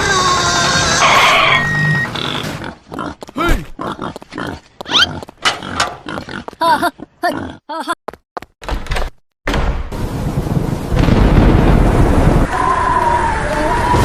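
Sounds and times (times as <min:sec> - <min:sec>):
pigs grunting and squealing: 0:00.0 - 0:07.7.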